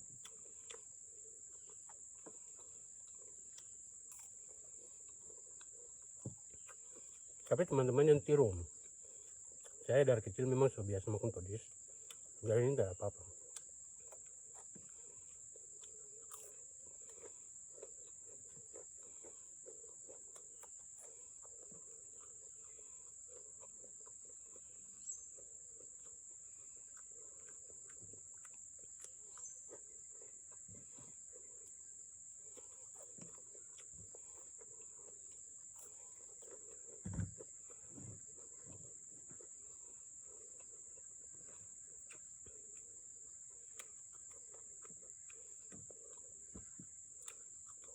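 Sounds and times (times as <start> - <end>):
eating sounds: 0.0 - 47.9
high-pitched insect trill: 0.0 - 47.9
soft thuds: 37.0 - 38.8.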